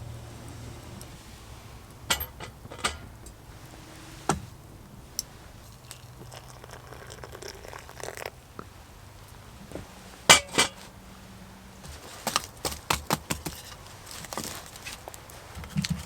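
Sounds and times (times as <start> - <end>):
sharp knocks and clinks: 2.1 - 3.4.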